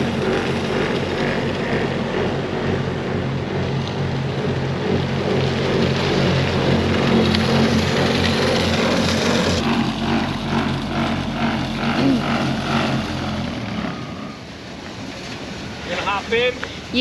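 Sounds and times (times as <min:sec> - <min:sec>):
rhythmic pulsing: 0:00.0 - 0:14.6
vehicle engine running: 0:00.0 - 0:17.0.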